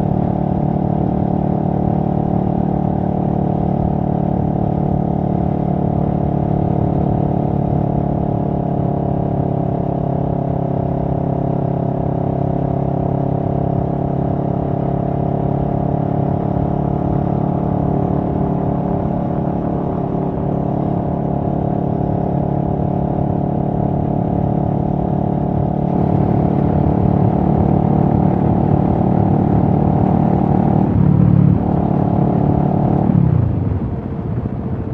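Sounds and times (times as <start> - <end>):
motorcycle engine running: 12.0 - 34.8.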